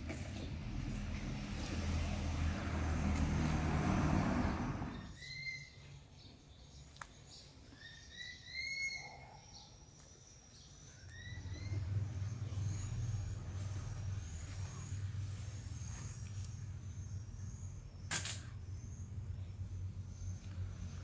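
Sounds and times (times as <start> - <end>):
low rumbling noise: 0.5 - 5.1
bird chirps: 4.9 - 21.0.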